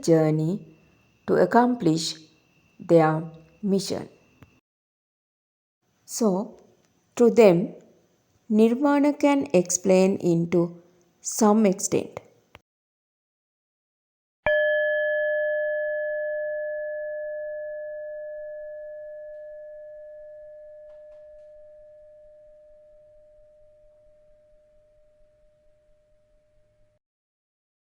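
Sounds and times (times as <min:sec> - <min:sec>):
singing bowl ringing: 0:14.5 - 0:26.9.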